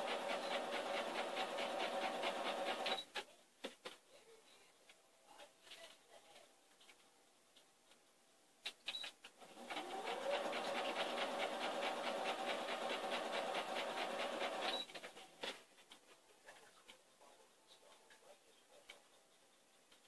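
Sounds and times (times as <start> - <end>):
sewing machine clicks: 0.0 - 3.0, 9.4 - 15.2
sewing machine stitching: 0.0 - 3.2, 9.4 - 15.4.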